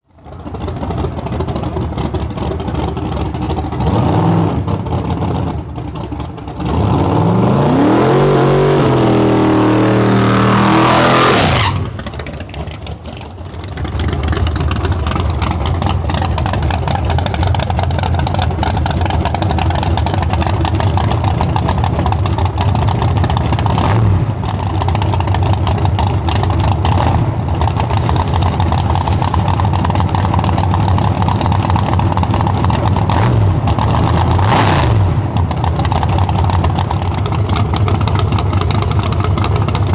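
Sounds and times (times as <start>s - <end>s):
pickup engine revving: 6.6s - 12.2s, 26.8s - 29.9s.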